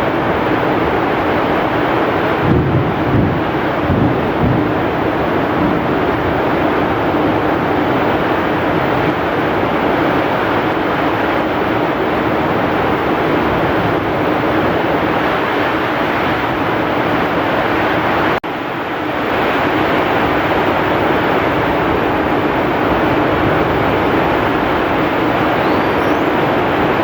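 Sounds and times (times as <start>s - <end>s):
heavy rain: 0.0s - 27.0s
strong wind: 0.0s - 27.0s.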